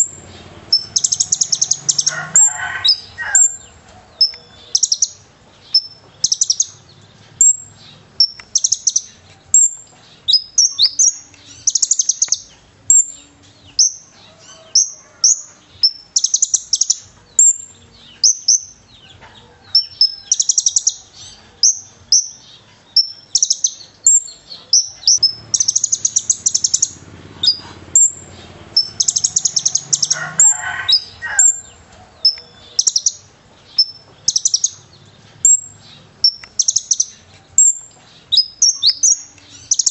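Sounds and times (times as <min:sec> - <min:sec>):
bird chirping: 0:00.0 - 0:39.9
bird buzzy trills: 0:23.0 - 0:39.9.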